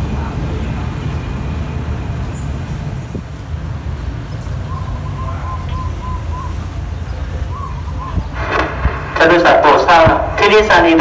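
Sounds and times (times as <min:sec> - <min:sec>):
diesel train rumbling: 0:00.0 - 0:11.0
bird calling repeated notes: 0:04.6 - 0:08.4.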